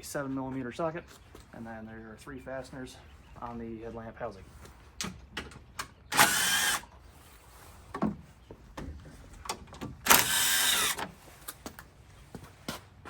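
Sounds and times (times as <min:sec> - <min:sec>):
cordless drill whirring: 0:06.1 - 0:06.9, 0:10.0 - 0:11.1.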